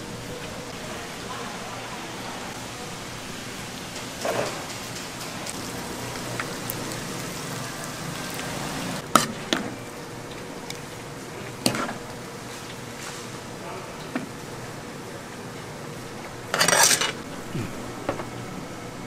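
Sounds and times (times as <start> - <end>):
food frying in hot oil: 0.0 - 13.6.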